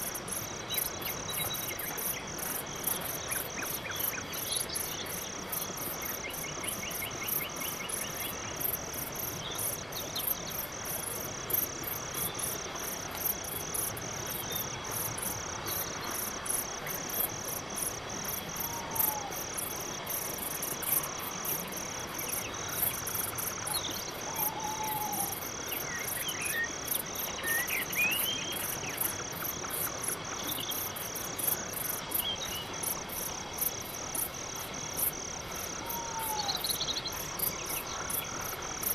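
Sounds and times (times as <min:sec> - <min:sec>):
crickets chirping: 0:00.0 - 0:38.9
faint bird calls: 0:18.6 - 0:19.4, 0:23.7 - 0:25.4, 0:35.8 - 0:37.1.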